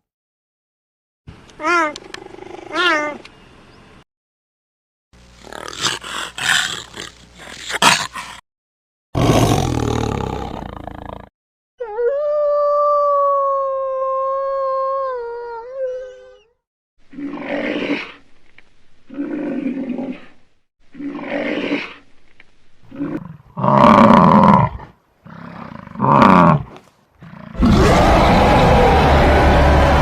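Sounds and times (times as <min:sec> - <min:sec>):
animal roars and growls: 0:09.2 - 0:11.3, 0:17.1 - 0:18.2, 0:19.1 - 0:22.1, 0:22.9 - 0:30.0.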